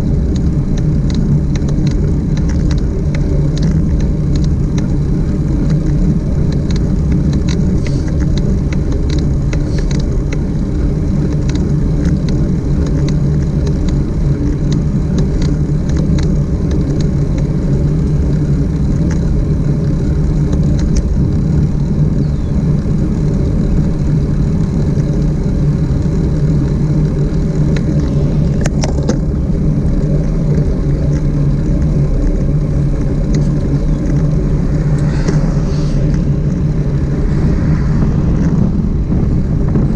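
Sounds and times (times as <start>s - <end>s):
wind and road noise: 0.0s - 39.9s
light ticks: 0.3s - 5.0s, 5.6s - 10.5s, 11.3s - 17.5s.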